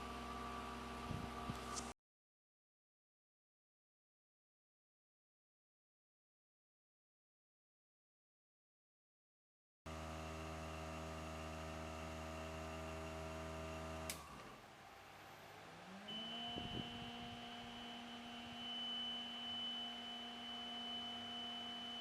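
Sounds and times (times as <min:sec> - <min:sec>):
electric hum: 0:09.9 - 0:22.0
motor spinning up and whining: 0:09.9 - 0:22.0.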